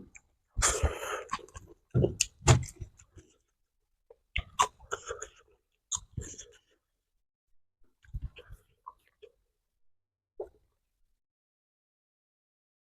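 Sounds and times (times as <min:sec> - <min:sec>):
person chewing crunchy food: 0:00.0 - 0:03.4, 0:04.1 - 0:06.7.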